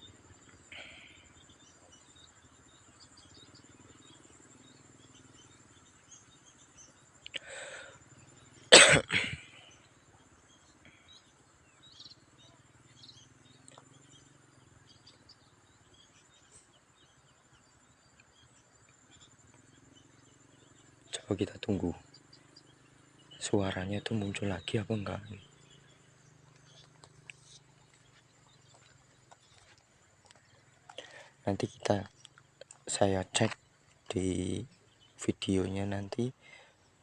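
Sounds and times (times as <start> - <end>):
faint bird chirps: 0.0 - 37.0
insects droning: 0.0 - 37.0
person coughing: 8.7 - 9.6.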